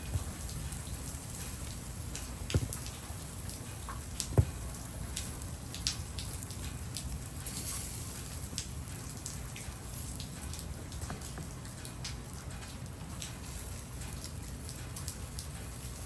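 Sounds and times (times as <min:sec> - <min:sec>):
rain hiss: 0:00.0 - 0:16.0
drops striking a surface: 0:02.5 - 0:03.0.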